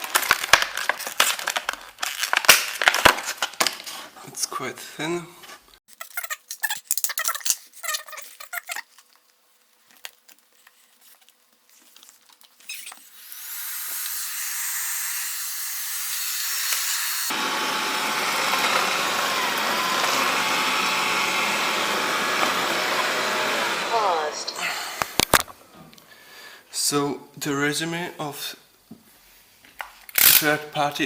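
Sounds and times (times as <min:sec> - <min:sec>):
robot vacuum whirring: 0:12.6 - 0:24.6
vacuum suction fan rushing: 0:17.3 - 0:24.3.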